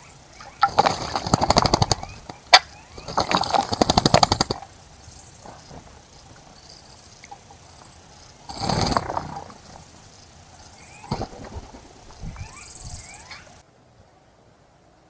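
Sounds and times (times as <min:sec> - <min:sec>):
bird splashing in water: 0:00.0 - 0:13.6.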